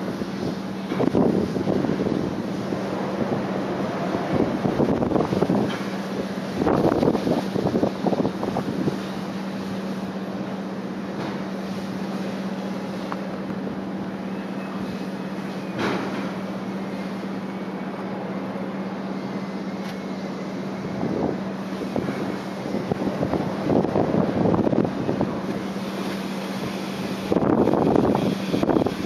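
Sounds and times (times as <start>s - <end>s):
strong wind buffeting microphone: 0.0s - 9.9s, 20.6s - 29.0s.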